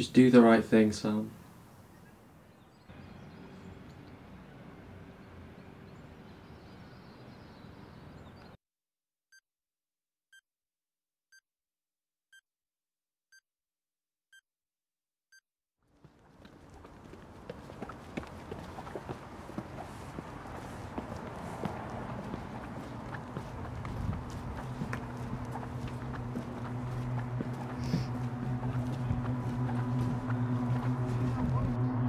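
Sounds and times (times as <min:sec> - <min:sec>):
outdoor background noise: 0:00.0 - 0:08.6, 0:15.9 - 0:32.0.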